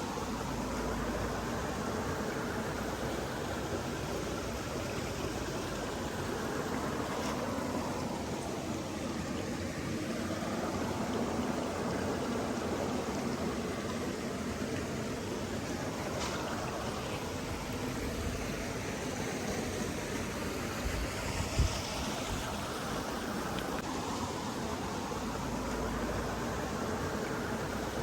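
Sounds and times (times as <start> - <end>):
flowing water rushing: 0.0 - 28.0.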